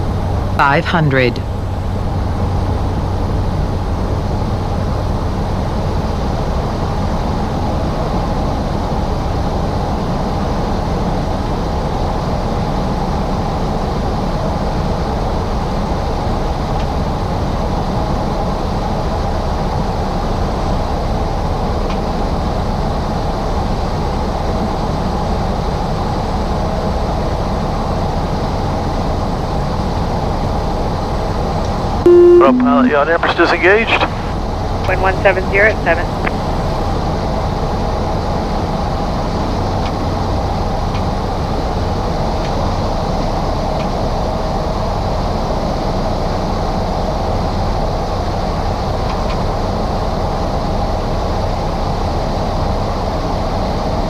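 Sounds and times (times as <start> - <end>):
propeller engine drone: 32.1 - 36.4.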